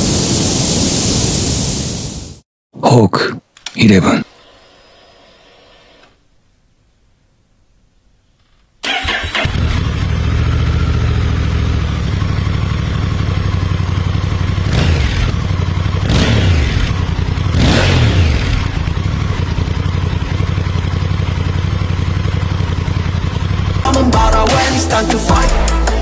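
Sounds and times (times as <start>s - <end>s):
motorcycle engine idling and revving: 8.9s - 25.5s.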